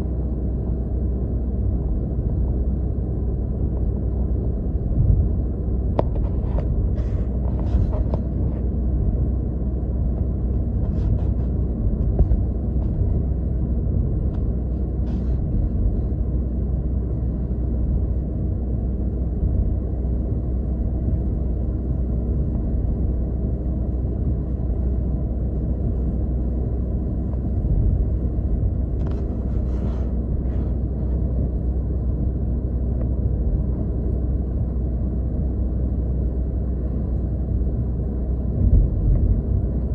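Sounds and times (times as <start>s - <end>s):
car road rumble from cabin: 0.0s - 39.9s.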